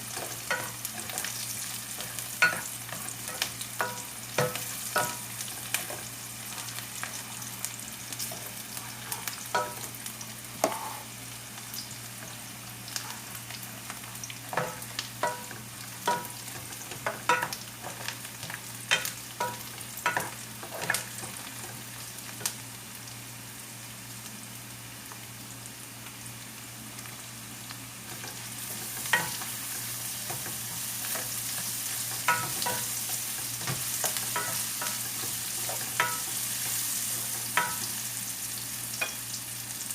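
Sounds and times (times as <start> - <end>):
food sizzling in oil: 0.0 - 39.9
utensil scraping and clinking on pan: 2.0 - 5.2, 30.3 - 36.4, 37.6 - 37.8.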